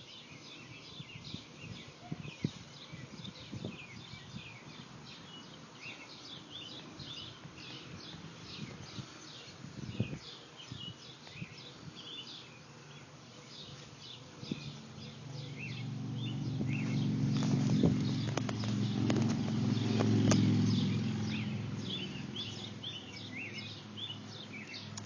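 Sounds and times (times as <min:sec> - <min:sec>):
small birds chirping: 0:00.0 - 0:25.0
faint low rumble: 0:14.8 - 0:22.9.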